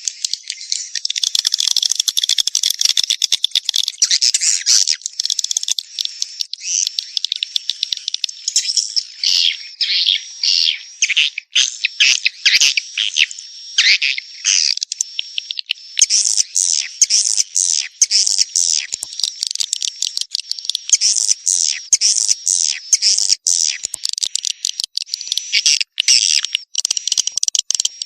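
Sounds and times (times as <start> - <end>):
swiftlets twittering: 11.9 - 28.0.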